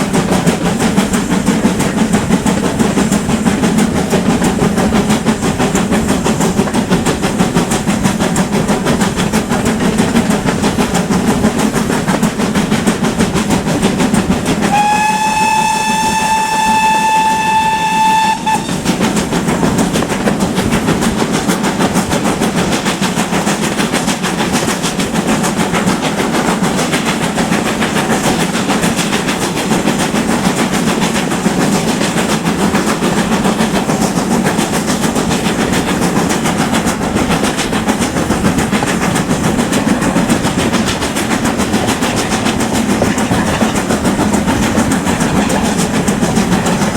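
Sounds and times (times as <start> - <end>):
steam locomotive rumbling: 0.0 - 46.9
steam whistle: 14.6 - 18.9.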